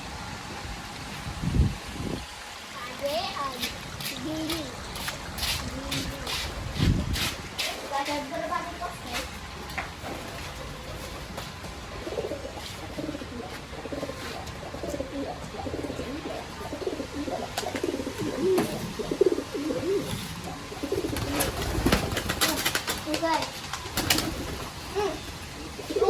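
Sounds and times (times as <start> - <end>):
pigeons cooing: 10.4 - 26.0.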